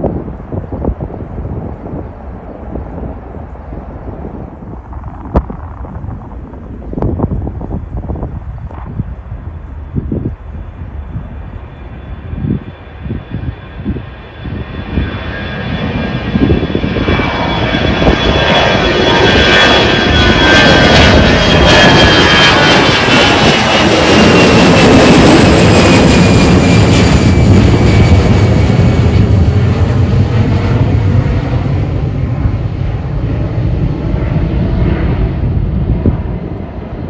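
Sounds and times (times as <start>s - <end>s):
high fan whine: 0.0s - 15.3s
jet airliner engine roar: 0.0s - 37.0s.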